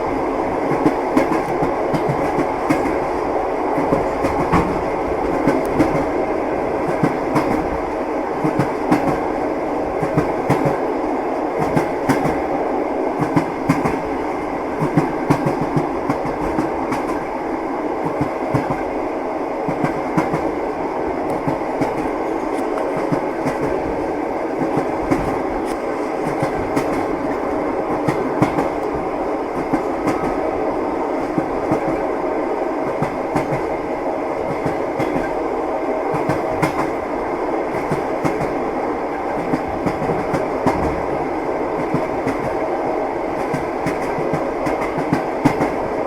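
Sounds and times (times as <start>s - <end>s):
train rolling rumble: 0.0s - 46.0s
train wheels clacking: 0.7s - 3.2s, 3.8s - 6.2s, 6.8s - 7.8s, 8.4s - 9.4s, 10.0s - 10.8s, 11.6s - 12.5s, 13.2s - 14.0s, 14.8s - 17.3s, 19.7s - 20.6s, 21.2s - 23.9s, 24.5s - 30.4s, 32.8s - 33.8s, 34.4s - 35.4s, 36.1s - 37.0s, 37.7s - 41.1s, 41.8s - 42.7s, 43.3s - 46.0s.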